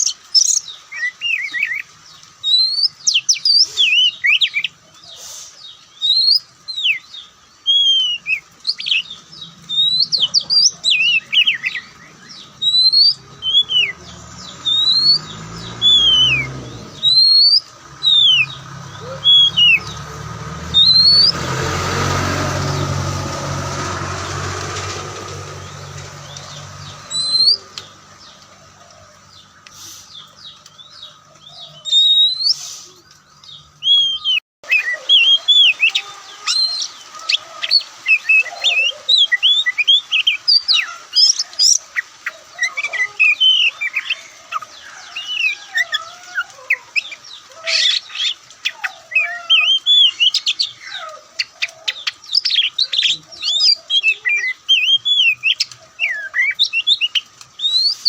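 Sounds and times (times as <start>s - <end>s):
bird singing whistled phrases: 2.4s - 4.7s, 6.0s - 9.1s, 9.7s - 20.0s, 20.8s - 21.4s, 27.1s - 27.7s, 31.8s - 32.7s, 33.8s - 37.0s, 52.3s - 58.0s.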